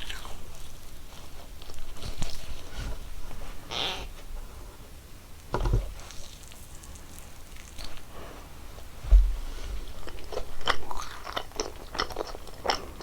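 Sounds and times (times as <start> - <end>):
chewing gummy candy: 9.8 - 13.0.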